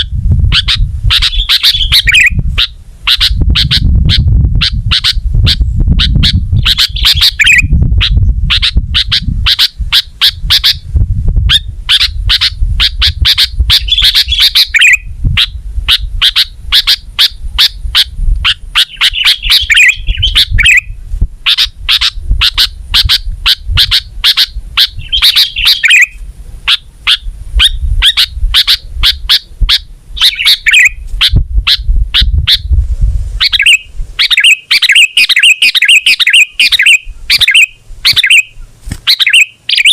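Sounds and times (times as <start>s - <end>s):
bird chirping and warbling: 0.0s - 32.8s, 33.4s - 39.9s
low rumble: 1.9s - 16.8s.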